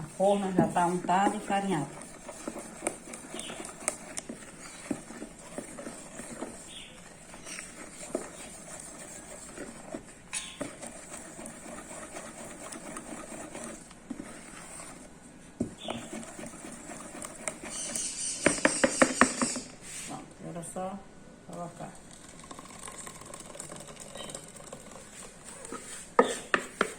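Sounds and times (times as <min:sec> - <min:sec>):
utensils tapping blender jug and pan: 0:17.2 - 0:19.7.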